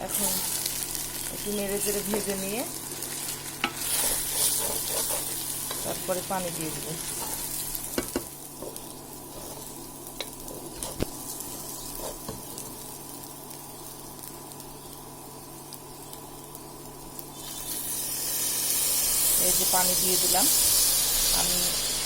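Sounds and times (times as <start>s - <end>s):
rice sizzling in frying pan: 0.0s - 22.0s
spatula scraping pan: 3.2s - 6.2s, 8.6s - 12.8s.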